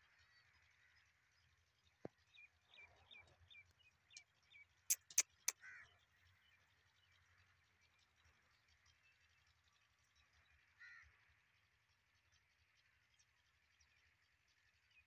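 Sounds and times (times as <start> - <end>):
bird chirps: 2.3 - 7.1
sharp clicks: 4.9 - 5.2
short harsh bird call: 4.9 - 5.9.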